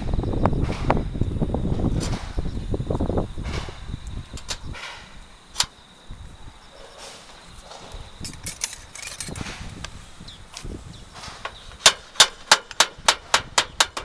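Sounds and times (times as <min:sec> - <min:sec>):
nails being hammered: 0:11.2 - 0:14.0.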